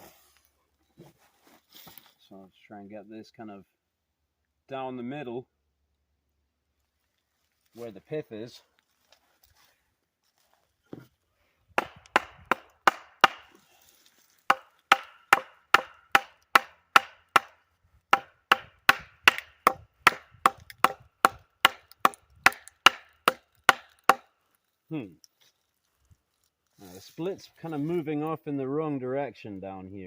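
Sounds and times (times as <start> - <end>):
mallet striking back of axe: 11.8 - 13.5, 14.5 - 17.5, 18.1 - 24.2.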